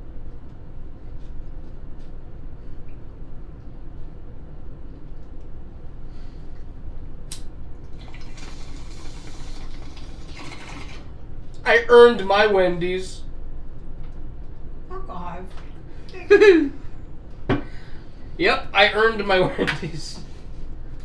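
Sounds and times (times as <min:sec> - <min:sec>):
watery liquid noise: 0:07.8 - 0:11.1.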